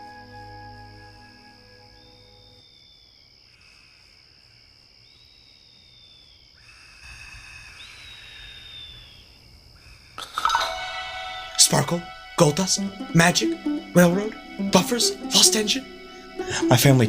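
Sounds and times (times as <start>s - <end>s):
insect chirring: 1.8s - 7.1s
thin whistled calls: 7.6s - 9.4s.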